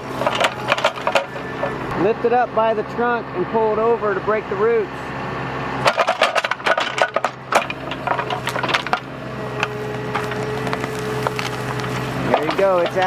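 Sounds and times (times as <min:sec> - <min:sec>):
excavator engine running: 0:00.0 - 0:13.0
wood cracking and snapping: 0:05.9 - 0:13.0.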